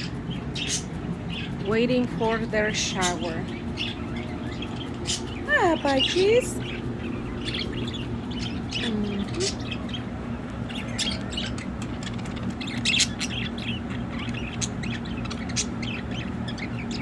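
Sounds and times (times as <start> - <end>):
budgerigars chirping: 0.0 - 17.0
low hum: 0.0 - 17.0.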